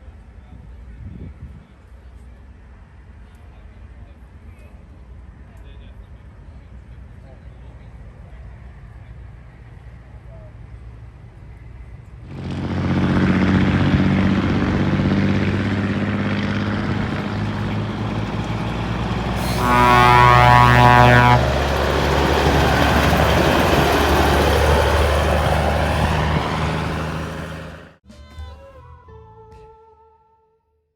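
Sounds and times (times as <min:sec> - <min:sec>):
truck horn: 0:12.3 - 0:27.9
truck diesel engine running: 0:12.3 - 0:28.0.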